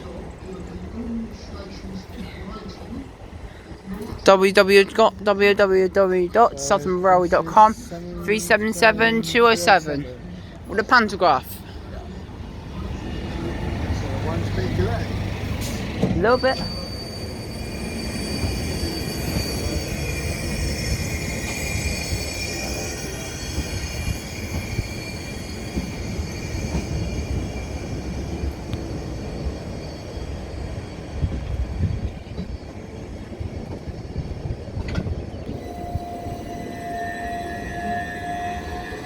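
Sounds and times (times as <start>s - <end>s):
train rumbling past: 0.0s - 39.0s
high wheel squeal: 12.8s - 34.5s, 35.4s - 39.0s.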